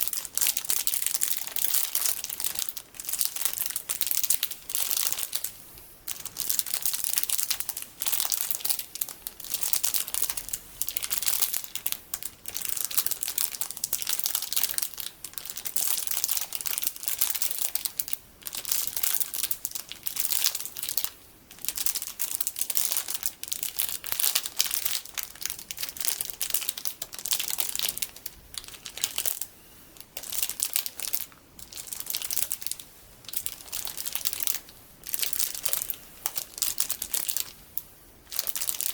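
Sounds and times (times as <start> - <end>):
plastic packaging crinkling: 0.0 - 37.6, 38.2 - 38.9.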